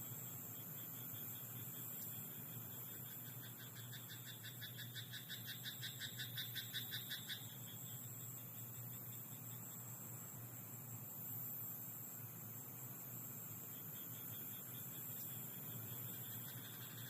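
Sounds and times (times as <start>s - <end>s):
frog croaking in rapid pulses: 2.8s - 8.1s, 14.0s - 17.0s.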